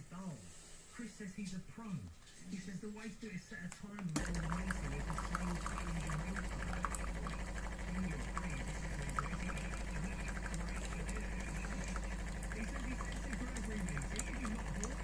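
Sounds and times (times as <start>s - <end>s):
espresso machine humming: 4.2s - 15.0s
liquid pouring and gurgling: 4.2s - 15.0s.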